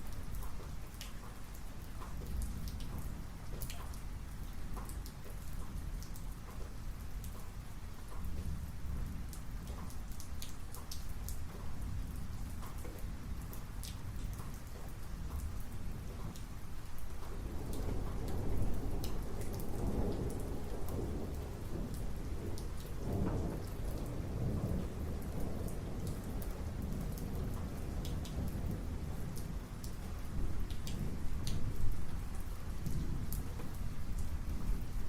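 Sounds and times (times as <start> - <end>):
raindrops ticking close by: 0.0 - 35.0
steady rain: 0.0 - 35.0
rolling thunder: 17.3 - 35.0.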